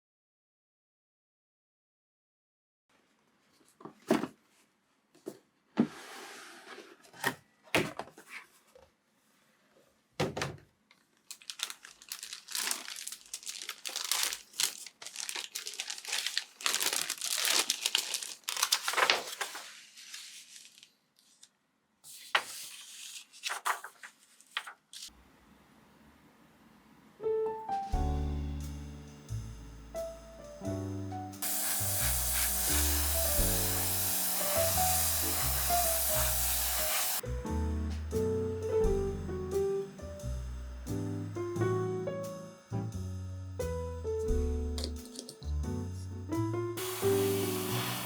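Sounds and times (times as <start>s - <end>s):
plastic packaging crinkling: 11.0s - 21.5s
background music: 27.2s - 48.0s.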